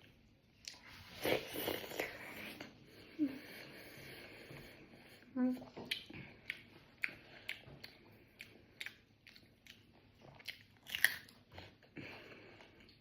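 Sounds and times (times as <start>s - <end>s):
person chewing food: 0.6s - 2.8s, 4.4s - 13.0s.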